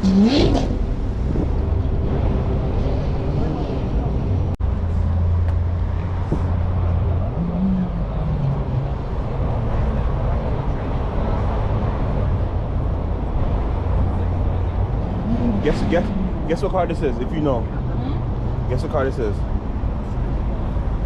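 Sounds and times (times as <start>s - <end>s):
engine revving: 0.0s - 4.6s, 15.0s - 18.0s
low engine rumble: 0.0s - 21.0s.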